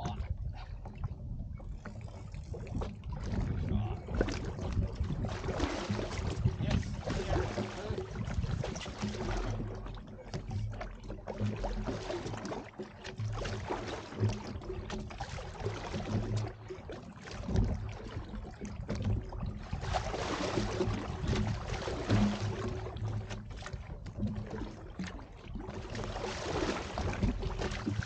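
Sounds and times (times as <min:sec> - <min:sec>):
wind noise: 0:00.0 - 0:08.8
water noise: 0:00.0 - 0:28.0.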